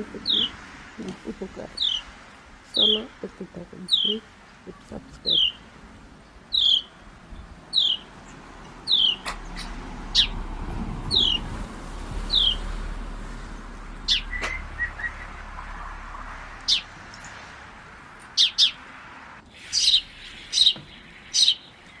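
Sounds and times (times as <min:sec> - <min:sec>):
bird calling: 0:00.0 - 0:05.7, 0:06.4 - 0:22.0
bird chirps: 0:01.7 - 0:02.1, 0:02.7 - 0:03.1, 0:03.8 - 0:05.6, 0:06.2 - 0:10.4, 0:11.1 - 0:11.5, 0:12.2 - 0:12.8, 0:13.4 - 0:17.5, 0:18.2 - 0:18.9, 0:19.5 - 0:22.0.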